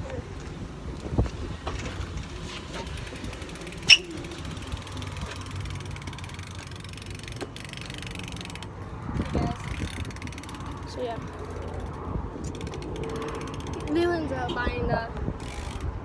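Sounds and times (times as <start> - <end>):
mechanical clicking and rattling: 2.2 - 14.0, 15.4 - 16.0.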